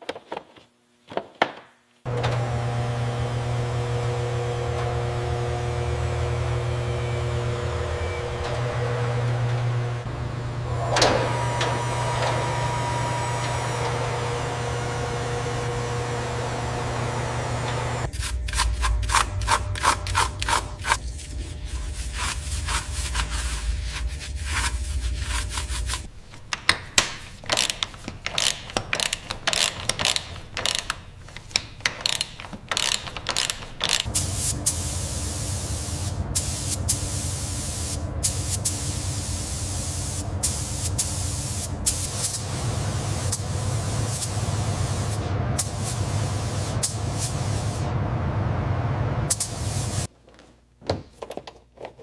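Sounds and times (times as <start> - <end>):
steady low hum: 2.1 - 26.4
hand tool scraping strokes: 18.1 - 26.1.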